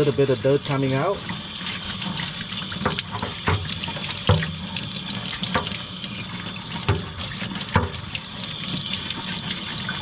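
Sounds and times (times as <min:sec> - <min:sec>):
tap water running into a sink: 0:00.0 - 0:10.0.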